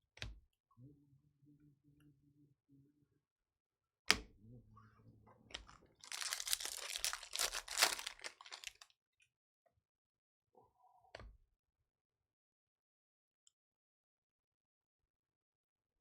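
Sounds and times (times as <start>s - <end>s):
wrapper tearing and crinkling: 6.0s - 8.8s.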